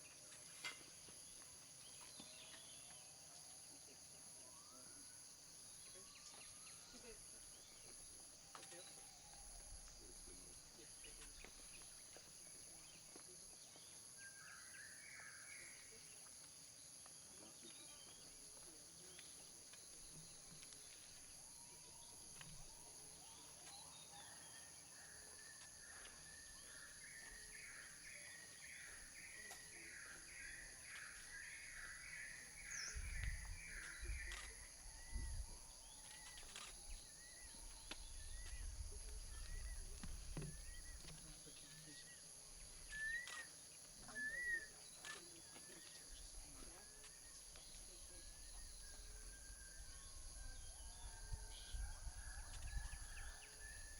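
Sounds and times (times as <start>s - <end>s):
bird call: 42.8s - 46.9s.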